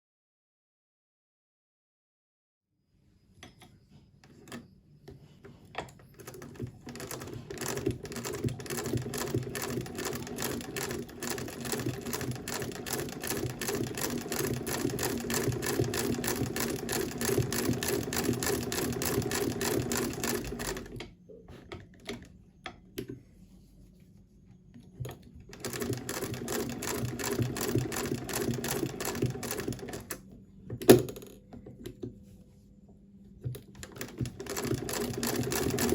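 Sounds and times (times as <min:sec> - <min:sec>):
sewing machine stitching: 0:05.8 - 0:21.0, 0:25.0 - 0:30.3, 0:33.6 - 0:35.9.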